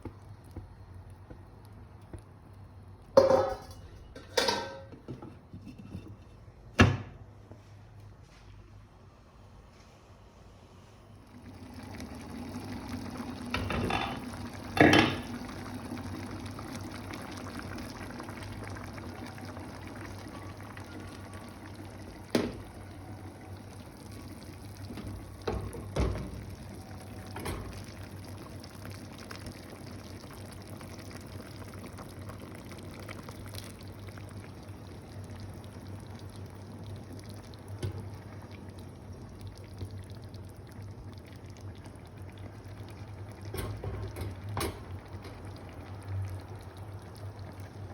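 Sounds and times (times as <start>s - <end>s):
liquid bubbling in a pot: 0.0s - 6.3s, 11.0s - 47.9s
pot or utensil knocks: 3.2s - 5.2s.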